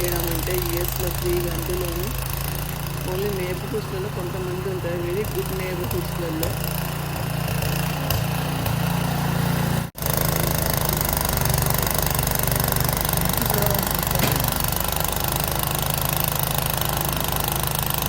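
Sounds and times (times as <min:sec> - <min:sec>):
snow blower engine running: 0:00.0 - 0:18.0.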